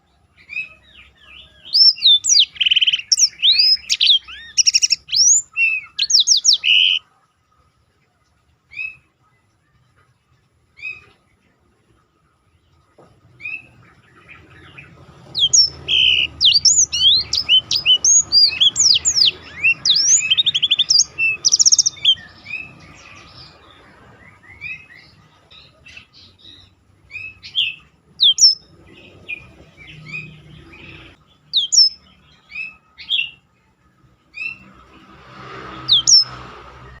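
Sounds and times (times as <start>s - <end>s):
canary singing whistled notes: 0.4s - 7.1s, 13.4s - 33.5s, 35.8s - 36.4s.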